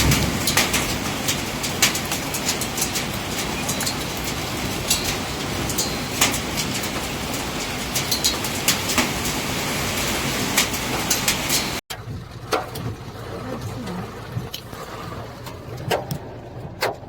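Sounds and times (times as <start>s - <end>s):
hail hissing on ground: 0.0s - 11.8s
hailstones cracking on hard surfaces: 0.0s - 11.8s.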